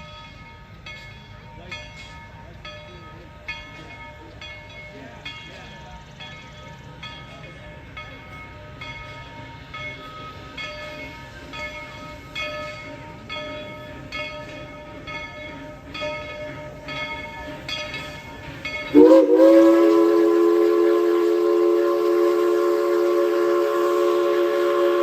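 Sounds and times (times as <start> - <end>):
locomotive bell ringing: 0.0 - 25.0
steam whistle chord: 18.9 - 25.0.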